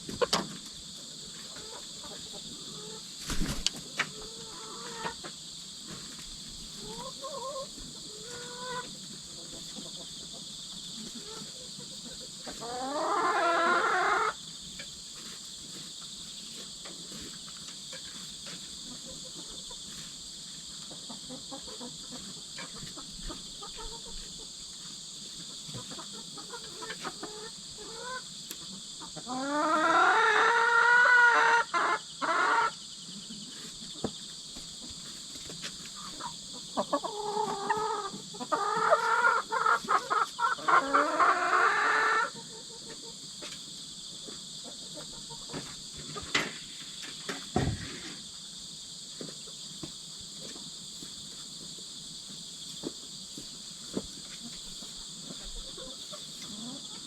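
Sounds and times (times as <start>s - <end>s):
insects trilling: 0.0s - 57.0s
chickens squawking: 1.6s - 5.3s, 6.8s - 10.1s, 11.1s - 14.4s, 25.8s - 32.8s, 36.0s - 43.0s.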